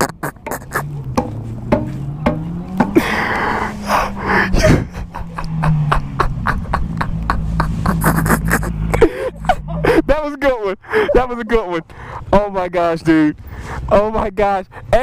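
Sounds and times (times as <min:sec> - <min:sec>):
snorting laughter and gasps: 0:00.0 - 0:00.9, 0:03.0 - 0:10.1
low engine hum: 0:00.1 - 0:15.0.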